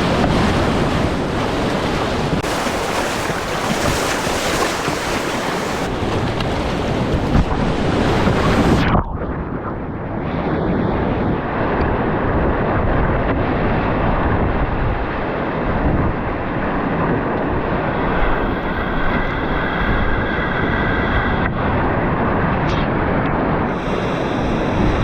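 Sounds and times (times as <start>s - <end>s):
wind buffeting microphone: 0.0s - 25.0s
whitewater rapids rushing: 2.4s - 5.9s.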